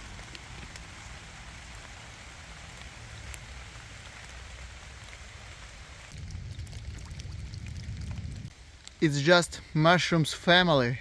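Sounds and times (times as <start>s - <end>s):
steady rain hiss: 0.0s - 6.6s, 7.5s - 11.0s
single raindrops ticking: 0.0s - 9.1s
low rumble: 6.1s - 8.6s.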